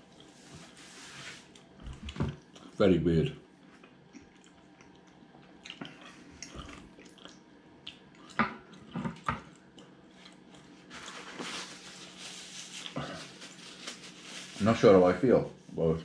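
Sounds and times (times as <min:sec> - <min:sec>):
tissue paper rustling: 0:00.4 - 0:01.5, 0:10.8 - 0:15.2
chewing with wet mouth clicks: 0:03.7 - 0:10.7.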